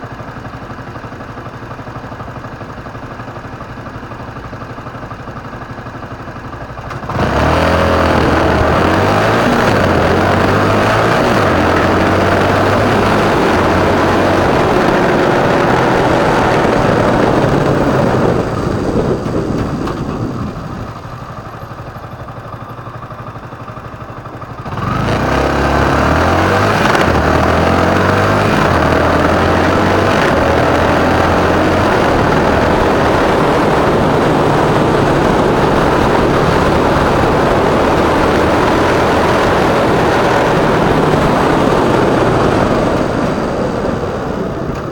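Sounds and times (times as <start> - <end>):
motorcycle engine accelerating: 0.0 - 44.9
rushing wind noise: 7.0 - 21.9, 24.6 - 44.9.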